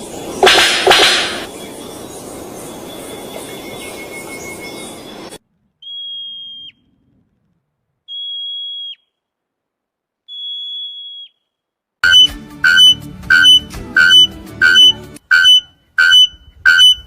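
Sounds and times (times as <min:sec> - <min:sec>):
loud beeping music: 0:00.4 - 0:01.5, 0:12.0 - 0:17.0
high-pitched whistle tones: 0:12.0 - 0:17.0.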